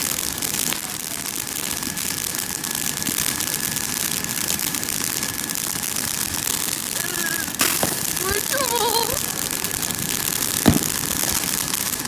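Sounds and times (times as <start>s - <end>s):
background hiss: 6.8s - 11.8s.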